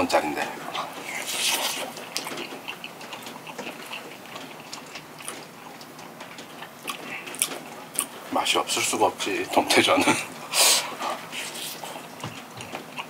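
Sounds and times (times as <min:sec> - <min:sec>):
chewing with wet crunches: 0:00.2 - 0:08.6, 0:09.6 - 0:13.0
rain hiss: 0:05.8 - 0:12.2.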